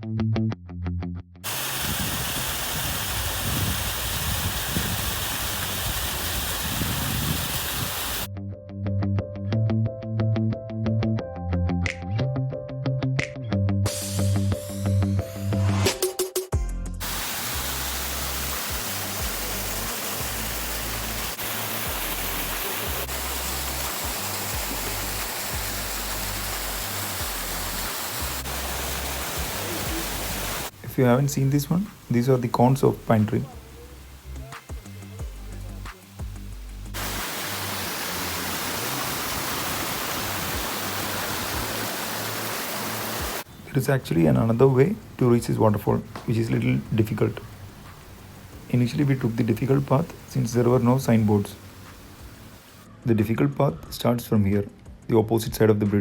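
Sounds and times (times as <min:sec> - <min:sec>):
background music with bass: 0:00.0 - 0:01.5, 0:08.3 - 0:39.0, 0:52.9 - 0:56.0
waterfall rushing: 0:01.4 - 0:08.3, 0:17.0 - 0:43.5, 0:46.1 - 0:52.8.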